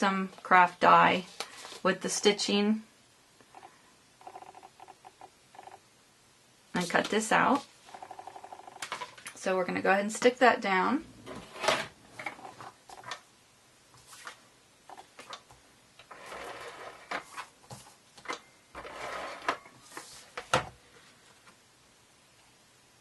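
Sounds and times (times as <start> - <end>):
paper rustling: 14.0 - 14.4.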